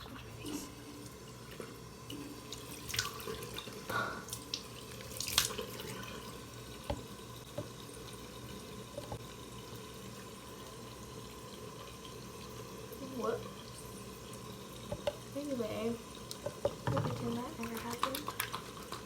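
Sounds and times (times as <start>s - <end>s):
tap water running into sink: 0.0s - 19.0s
water splashes: 2.5s - 6.4s, 16.8s - 19.0s.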